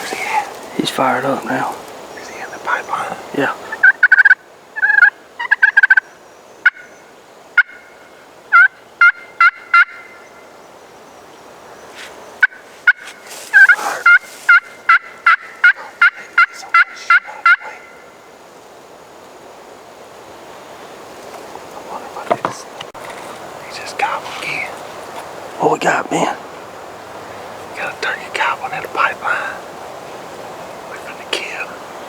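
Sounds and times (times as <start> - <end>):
wild turkey yelping: 2.2 - 6.9, 7.6 - 10.3, 12.4 - 18.2.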